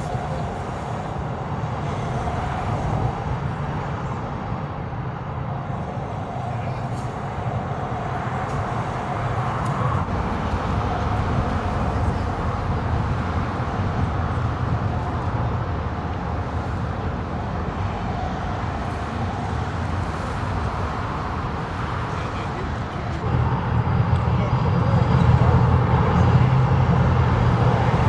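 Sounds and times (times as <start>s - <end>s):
outdoor background noise: 0.0s - 28.0s
car engine idling: 18.6s - 28.0s.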